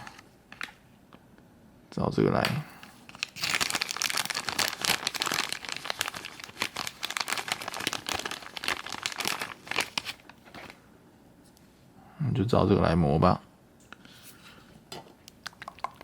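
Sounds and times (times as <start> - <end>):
plastic packaging crinkling: 3.0 - 10.8, 15.3 - 16.0.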